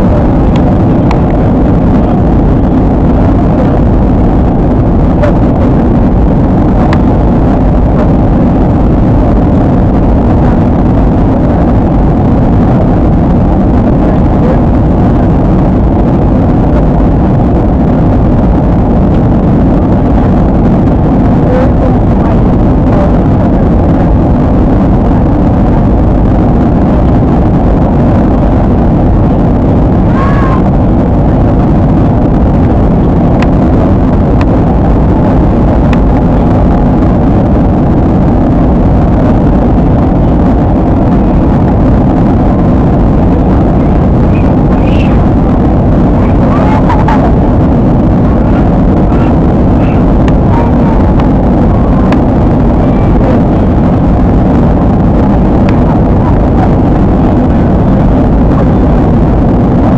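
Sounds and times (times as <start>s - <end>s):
jet airliner cabin rumble: 0.0s - 59.9s.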